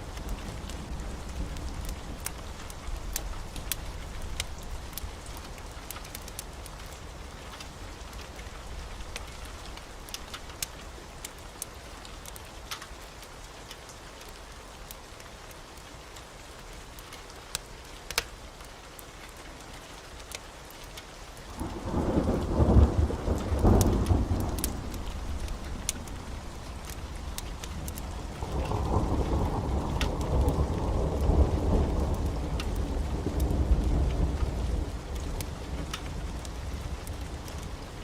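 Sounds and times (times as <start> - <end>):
rain: 0.0 - 38.0
thunder rumbling: 21.6 - 38.0.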